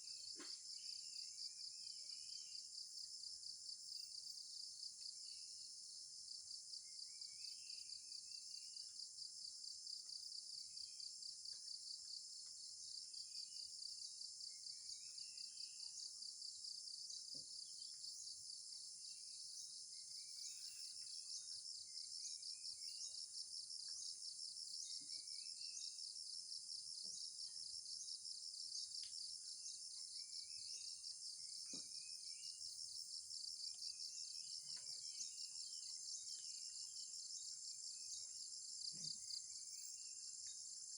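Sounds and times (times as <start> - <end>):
bird chirping: 9.8 - 40.9.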